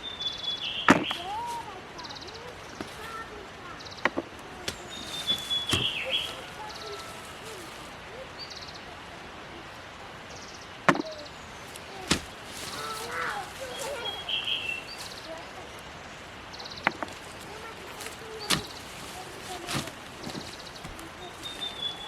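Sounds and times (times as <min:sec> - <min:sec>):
hand hoe digging into soil: 0:04.6 - 0:07.6, 0:11.7 - 0:15.2, 0:16.9 - 0:22.0.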